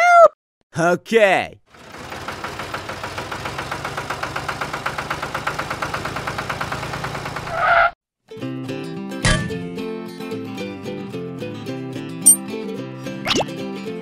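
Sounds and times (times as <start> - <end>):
tractor engine chugging: 1.7 - 7.7
music: 8.3 - 14.0.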